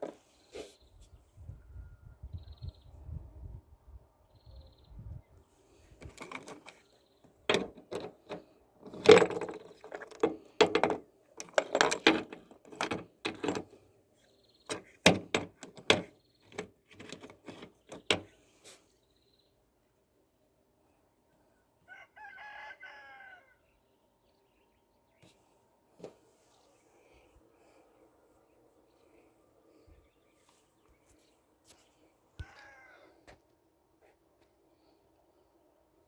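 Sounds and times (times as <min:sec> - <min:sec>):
sharp knocks and clicks: 0:14.7 - 0:18.3.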